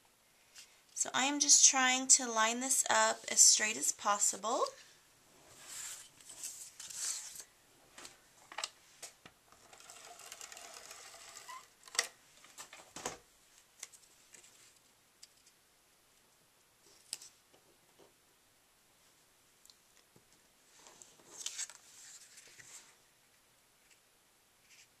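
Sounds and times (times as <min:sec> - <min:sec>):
paper sliding rustle: 0:05.5 - 0:08.2, 0:20.8 - 0:23.0.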